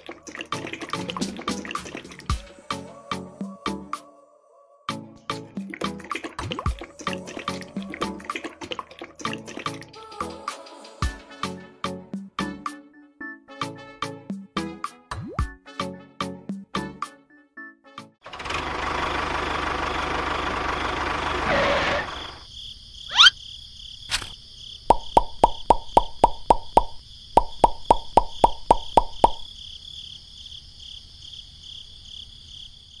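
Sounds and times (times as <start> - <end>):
loud motor-like noise: 18.2 - 22.4
crickets chirping: 22.1 - 33.0
rising whistle: 23.1 - 23.4.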